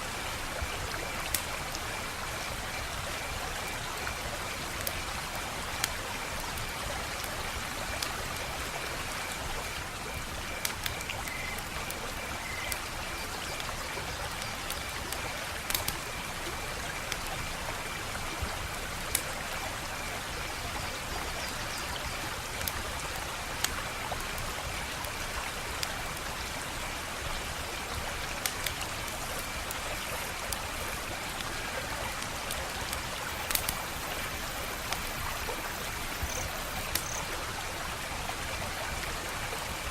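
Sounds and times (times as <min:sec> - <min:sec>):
wood fire hissing: 0:25.5 - 0:38.1
burning wood popping and crackling: 0:32.0 - 0:35.5.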